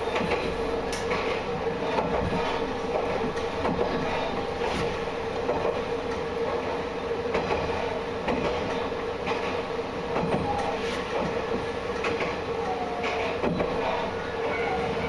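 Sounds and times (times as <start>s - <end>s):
railcar engine hum: 0.0s - 15.0s
wheels clicking over rail joints: 7.3s - 14.8s.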